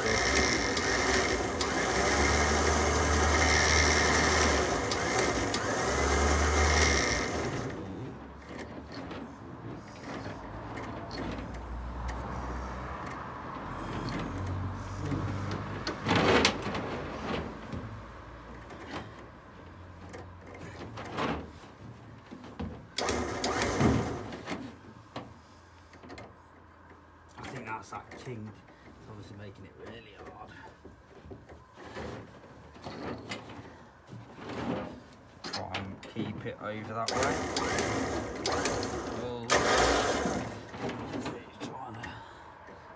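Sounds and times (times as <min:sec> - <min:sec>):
winch motor hum: 0:00.0 - 0:08.6, 0:36.9 - 0:40.8
cable and drum clanking: 0:00.0 - 0:12.3, 0:15.1 - 0:25.3, 0:31.4 - 0:41.9.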